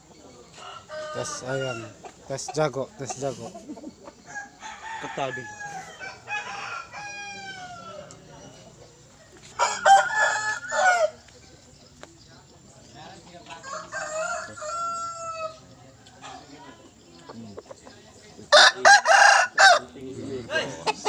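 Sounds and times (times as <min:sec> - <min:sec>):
rooster crowing: 0:00.6 - 0:02.0, 0:04.3 - 0:08.1, 0:09.6 - 0:11.2, 0:13.6 - 0:15.6, 0:18.5 - 0:19.9.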